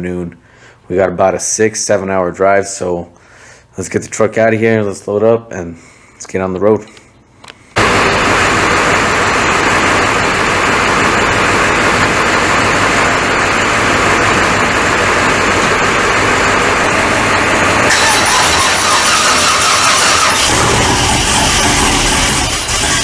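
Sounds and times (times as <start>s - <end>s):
vehicle running noise: 7.8s - 23.0s.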